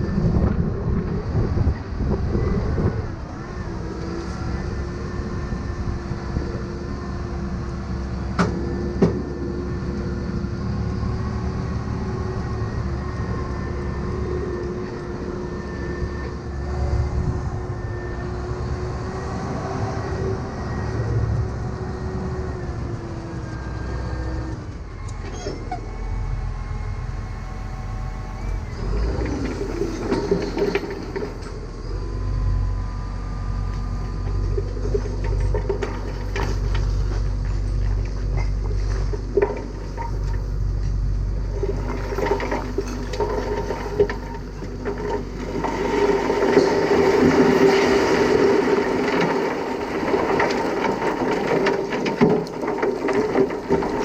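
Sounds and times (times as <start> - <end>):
tractor engine running: 20.1 - 54.0
trailer rattling: 24.7 - 54.0.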